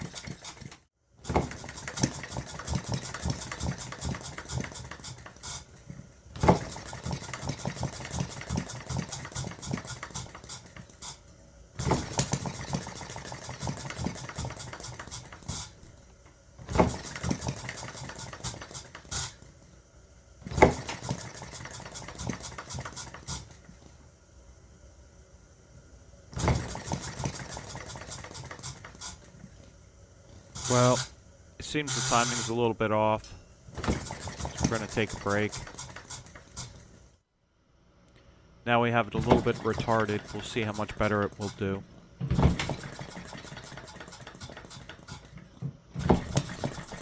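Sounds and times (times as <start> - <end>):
small engine rapid chatter: 0.0 - 5.7, 6.4 - 11.2, 11.8 - 15.8, 16.7 - 19.4, 20.5 - 23.6, 26.4 - 29.3, 30.6 - 32.7, 33.8 - 36.8, 39.2 - 41.8, 42.4 - 45.3, 46.0 - 47.0.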